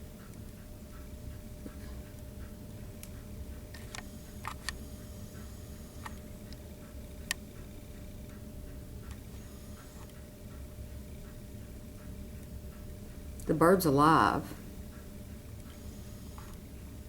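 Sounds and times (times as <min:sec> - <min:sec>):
steady low hum: 0:00.0 - 0:17.0
sharp clicks and ticks: 0:06.0 - 0:09.2.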